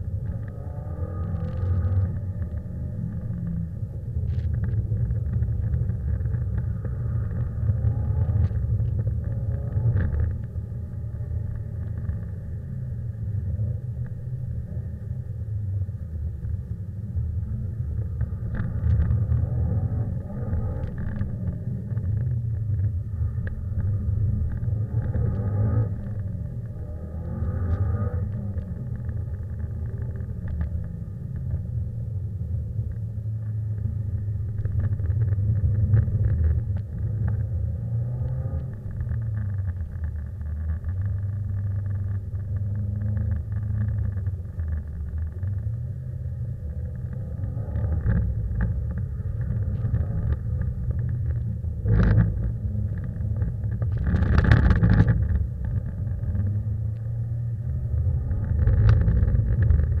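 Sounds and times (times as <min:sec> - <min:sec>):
car engine revving: 0:17.3 - 0:39.8.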